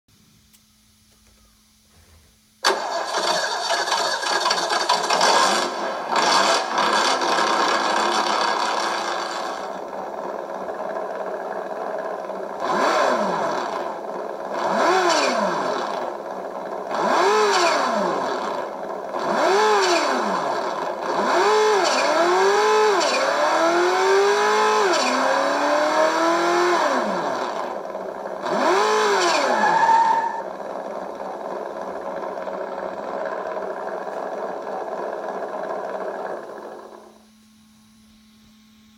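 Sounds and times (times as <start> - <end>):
simulated engine sound revving: 4.4 - 9.8, 12.6 - 16.2, 16.8 - 31.2.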